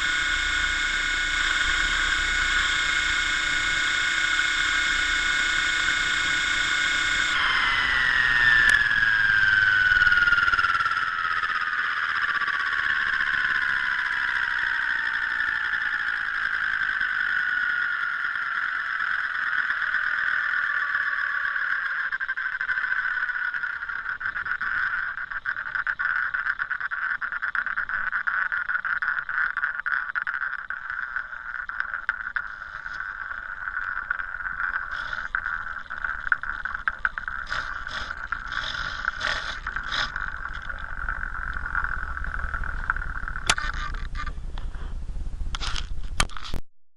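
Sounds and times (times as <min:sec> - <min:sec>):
helicopter rotor whine: 0:00.0 - 0:22.1
sharp clicks: 0:00.0 - 0:44.7.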